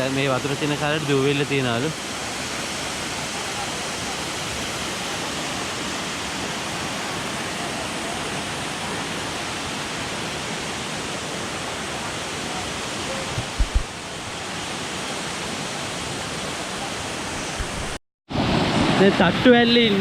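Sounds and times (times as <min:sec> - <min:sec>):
waterfall rushing: 0:00.0 - 0:20.0
low thumps: 0:13.3 - 0:14.0.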